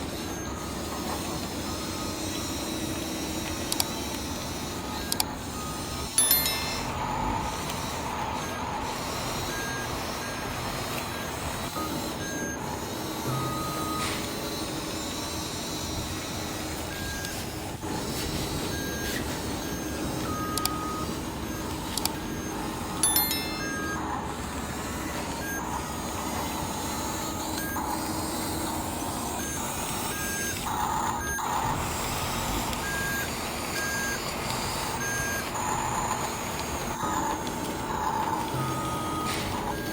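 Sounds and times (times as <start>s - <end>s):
electric motors and gears humming: 0.0s - 39.9s
sharp clicks: 3.4s - 4.3s, 20.3s - 21.0s, 21.6s - 22.4s
short electronic beeps: 18.1s - 24.0s, 32.8s - 36.2s, 36.8s - 39.9s.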